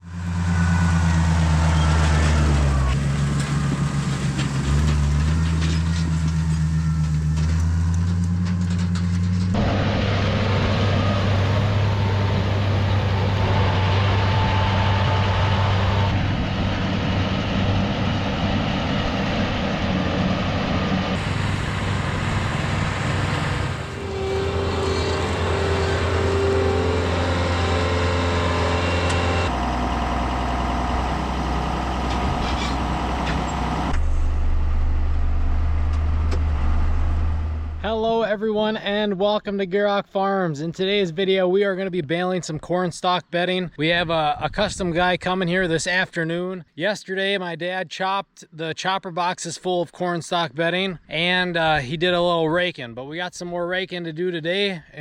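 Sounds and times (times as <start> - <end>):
tractor engine running: 0.0 - 38.2.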